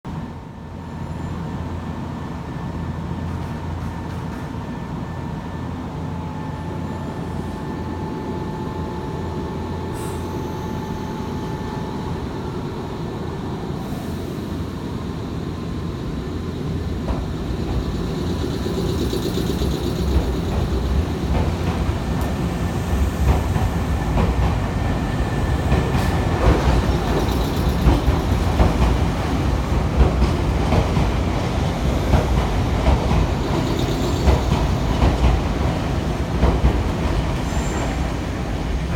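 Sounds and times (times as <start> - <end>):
electric train rumbling: 0.1 - 38.9
wheels clacking over rail joints: 25.7 - 31.3.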